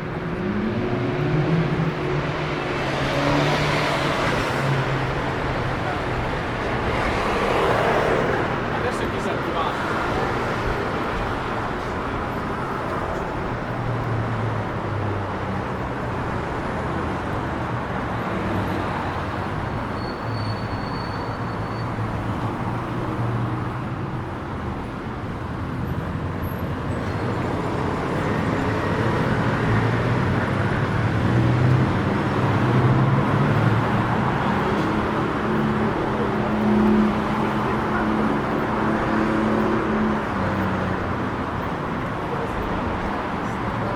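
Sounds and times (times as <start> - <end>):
passing engines hum: 0.0 - 43.9
street traffic road noise: 0.0 - 43.9.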